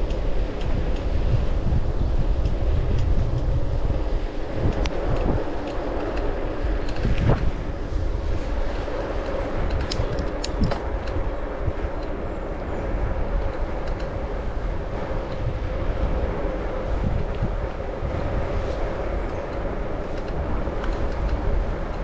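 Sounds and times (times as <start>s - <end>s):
light clicks and ticks: 0.0s - 1.2s, 2.4s - 3.5s, 4.6s - 7.3s, 9.1s - 12.5s, 13.4s - 14.2s, 18.7s - 22.0s
wind buffeting microphone: 0.0s - 22.0s.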